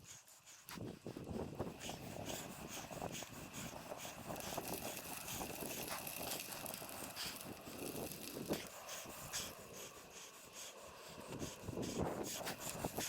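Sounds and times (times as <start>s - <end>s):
bicycle riding rush: 0.3s - 13.0s
bicycle clicks and rattles: 1.7s - 9.7s, 12.2s - 13.0s.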